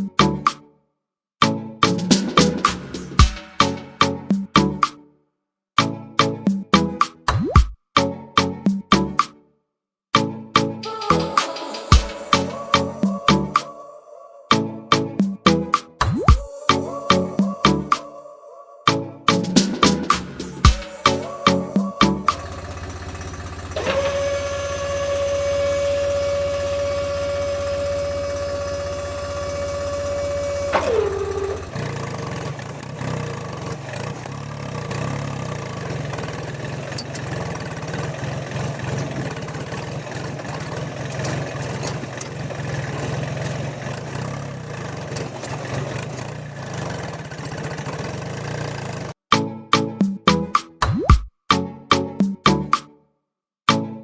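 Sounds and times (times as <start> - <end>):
rattling engine running: 20.9 - 49.2
small electric motor whining: 22.3 - 49.2.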